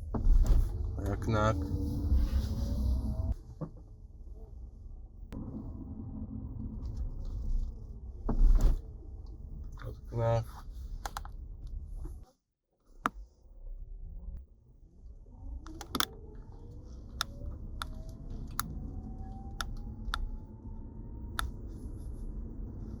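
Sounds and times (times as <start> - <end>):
low rumble: 0.0 - 12.2, 13.6 - 23.0
faint rising whine: 0.7 - 3.4, 5.4 - 8.4, 15.3 - 23.0
steering clicks: 11.0 - 11.3, 15.7 - 16.2, 17.1 - 18.7, 19.4 - 20.4.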